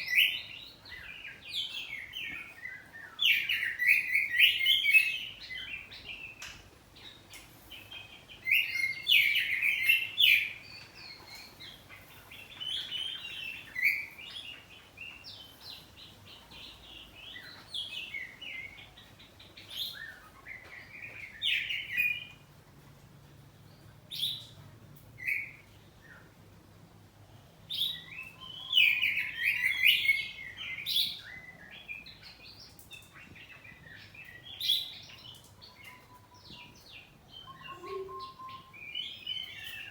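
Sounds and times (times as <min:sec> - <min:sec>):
magpie-robin singing: 0:00.0 - 0:06.4, 0:08.3 - 0:16.4, 0:27.7 - 0:39.9.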